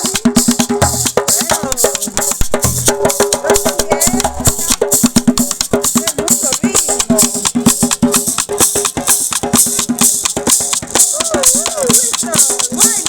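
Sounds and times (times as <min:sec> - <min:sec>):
live band dance music: 0:00.0 - 0:13.0
maracas shaking: 0:00.0 - 0:13.0.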